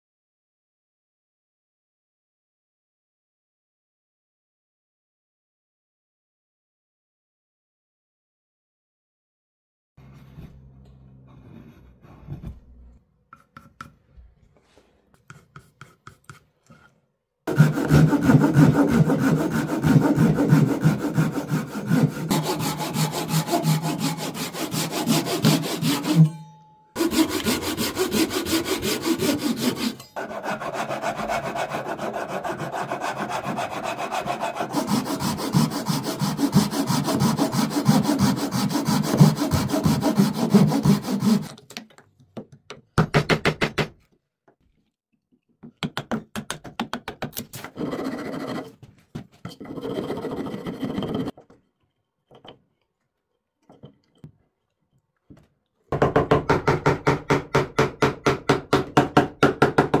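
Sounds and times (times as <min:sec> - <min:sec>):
hand saw cutting wood: 0:17.5 - 0:26.4, 0:27.0 - 0:41.6, 0:49.6 - 0:51.3.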